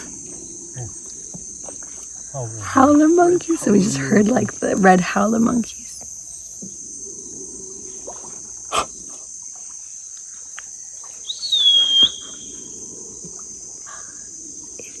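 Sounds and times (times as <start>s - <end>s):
howler monkeys roaring faintly: 0.0s - 9.3s
high-pitched insect chorus: 0.0s - 15.0s
bird whistled call: 11.2s - 12.7s.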